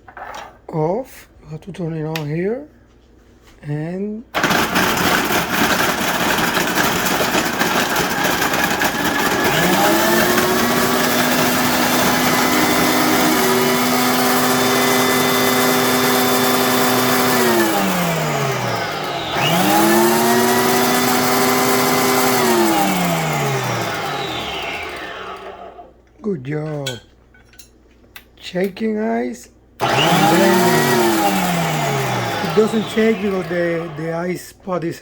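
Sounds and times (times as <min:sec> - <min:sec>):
ice grinding: 0:04.4 - 0:25.4, 0:29.8 - 0:34.1
blender motor humming: 0:04.4 - 0:25.9, 0:29.8 - 0:34.2.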